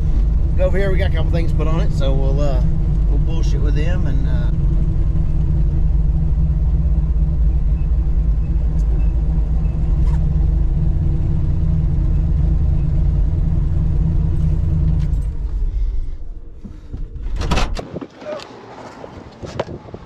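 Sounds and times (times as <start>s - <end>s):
car engine deep rumble: 0.0s - 20.0s.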